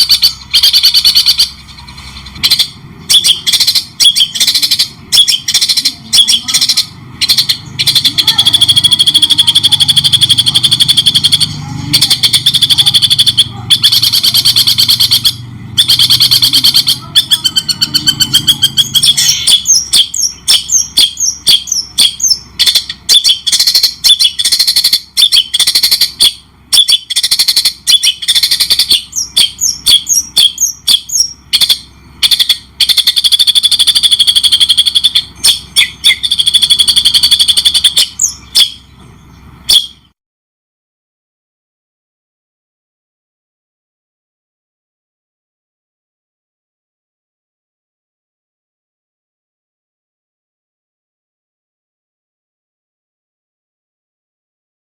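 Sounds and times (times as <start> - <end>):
songbird trills and chirps: 0.0 - 40.1.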